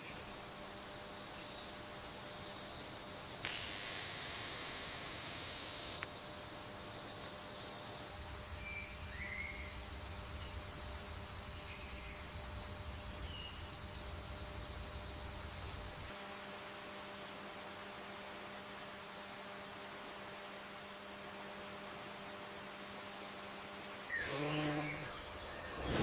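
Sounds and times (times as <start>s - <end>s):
high insect drone: 0.0s - 26.0s
low steady hum: 0.2s - 16.2s.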